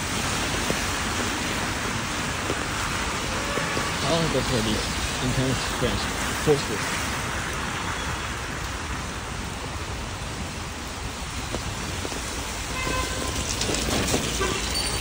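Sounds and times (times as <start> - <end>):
rain on a wet street: 0.0 - 15.0
faint car horn toots: 12.7 - 13.4, 14.3 - 15.0.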